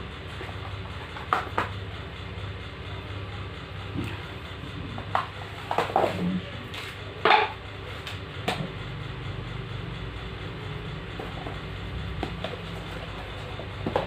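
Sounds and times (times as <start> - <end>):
steady low hum: 0.0 - 14.0
hard objects knocking and clattering: 0.4 - 1.8, 4.8 - 6.3, 7.2 - 7.6, 11.2 - 14.0.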